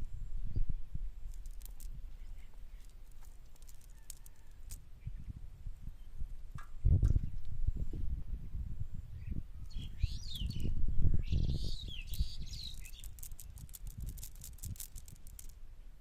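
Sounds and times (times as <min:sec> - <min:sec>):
bird chirping and clicking: 0:01.3 - 0:04.8, 0:09.6 - 0:10.7, 0:11.3 - 0:15.5.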